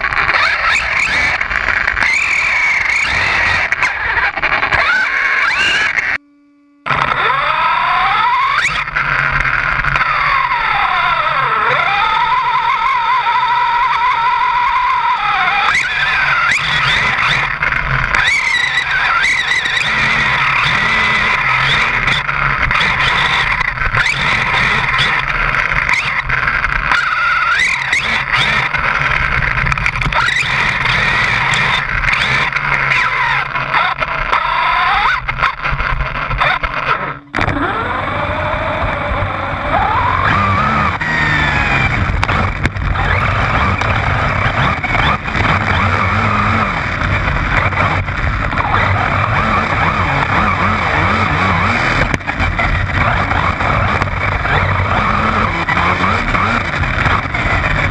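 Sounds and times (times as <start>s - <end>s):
road and wind noise: 8.2s - 57.9s
truck engine running: 37.0s - 57.9s.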